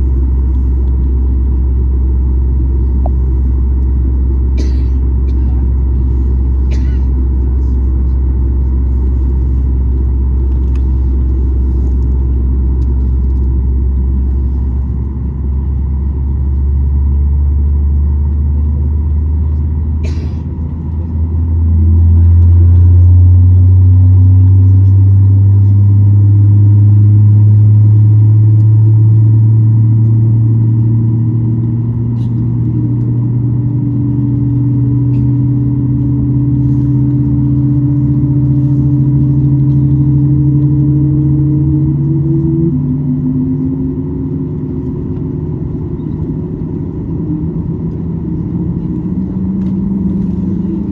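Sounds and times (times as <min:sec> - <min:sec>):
low cabin rumble: 0:00.0 - 0:50.9
jet engines spooling up: 0:41.8 - 0:50.9.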